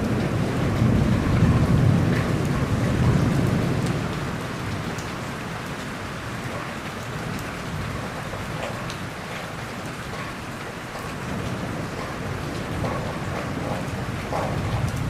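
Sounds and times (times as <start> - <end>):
heavy rain falling: 0.0 - 15.0
thunder rumble: 0.0 - 15.0
drops ticking on a surface: 4.7 - 15.0.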